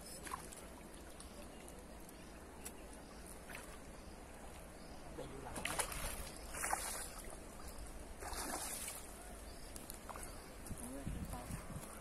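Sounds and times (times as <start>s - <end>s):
fish splashing in water: 5.5s - 7.4s, 8.2s - 9.2s.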